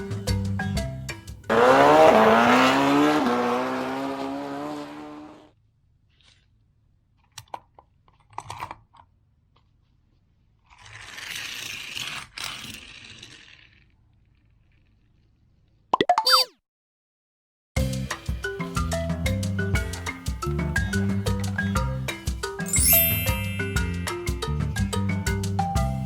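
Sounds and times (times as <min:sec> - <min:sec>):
vehicle sound effect falling pitch: 0:01.5 - 0:05.4
toy cars scraping and rolling: 0:10.6 - 0:15.8.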